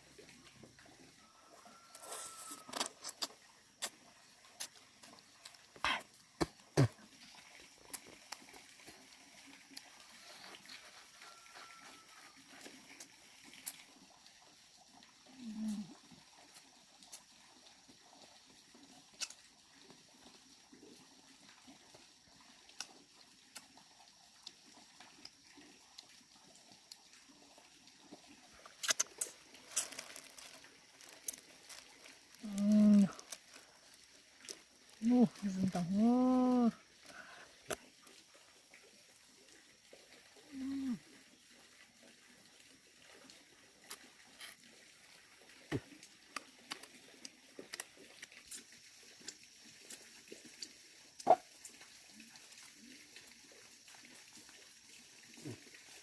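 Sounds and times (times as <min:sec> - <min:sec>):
rustle: 0:01.4 - 0:03.9, 0:04.6 - 0:14.0, 0:28.5 - 0:38.2.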